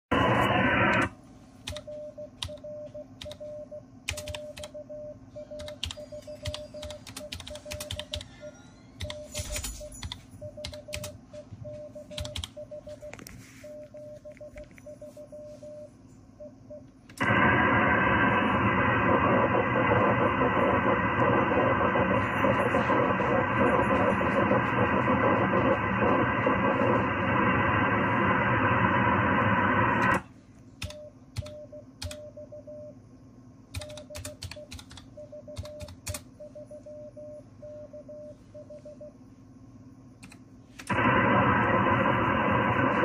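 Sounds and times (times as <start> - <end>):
radio receiver hiss: 0.1 - 1.2, 17.1 - 30.2, 40.8 - 43.0
radio tone keying dashes: 0.1 - 1.2, 11.6 - 30.2, 40.9 - 43.0
sharp keyboard clicks: 4.1 - 4.8, 5.6 - 8.3, 9.0 - 11.2, 12.1 - 12.6, 30.8 - 32.2, 33.7 - 36.3, 40.2 - 40.9.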